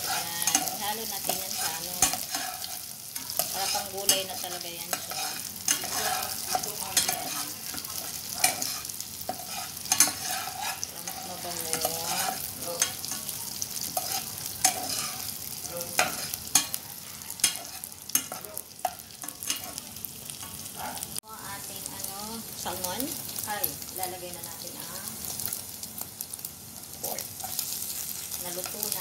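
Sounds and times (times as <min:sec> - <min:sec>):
spatula knocking and scraping pan: 0:00.0 - 0:13.2, 0:13.9 - 0:15.3, 0:15.9 - 0:16.8, 0:17.4 - 0:19.8
food sizzling in hot oil: 0:00.0 - 0:29.0.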